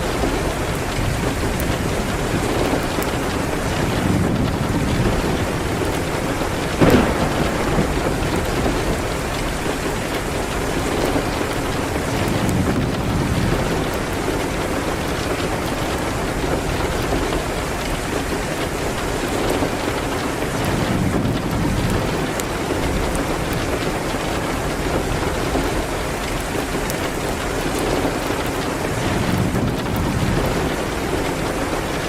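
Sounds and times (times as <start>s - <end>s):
fireplace crackling: 0.0s - 16.0s
rain against a window: 0.0s - 32.0s
sharp crack: 6.8s - 9.8s.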